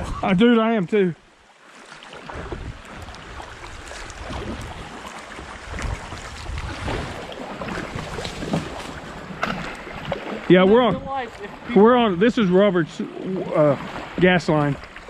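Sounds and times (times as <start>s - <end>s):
creek water splashing: 0.0s - 15.0s
wind buffeting microphone: 2.3s - 12.2s.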